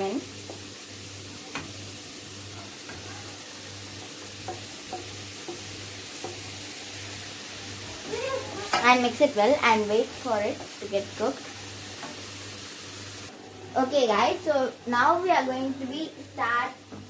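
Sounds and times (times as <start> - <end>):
vegetables sizzling in butter: 0.0 - 17.0
spatula tapping on plate: 4.0 - 6.4.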